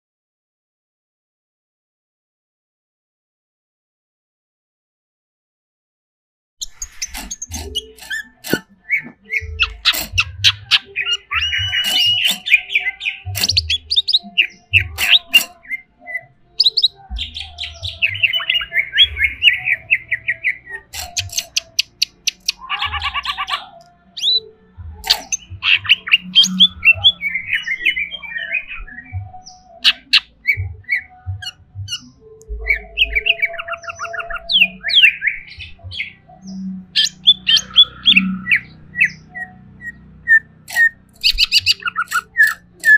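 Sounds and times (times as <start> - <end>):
bird chattering trills and squawks: 6.6 - 28.8, 29.7 - 42.9.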